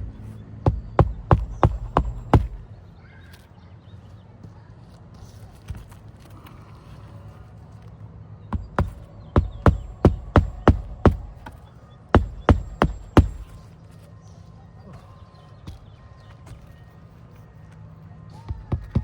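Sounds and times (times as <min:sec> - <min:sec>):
hammer striking nails: 0:00.0 - 0:02.7, 0:08.5 - 0:13.6.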